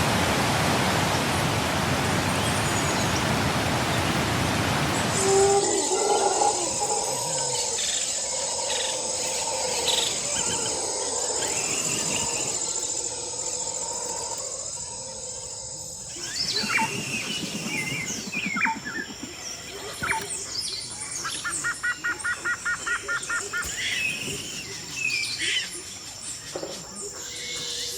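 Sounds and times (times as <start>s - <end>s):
insects droning: 0.0s - 27.9s
wild birds calling: 2.1s - 27.9s.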